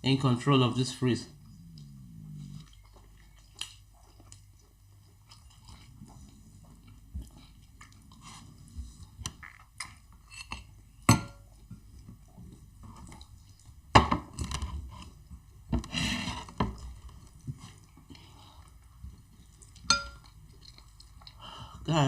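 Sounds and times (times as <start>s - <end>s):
soft chewing: 1.2s - 21.9s
crockery clinking: 19.9s - 20.3s.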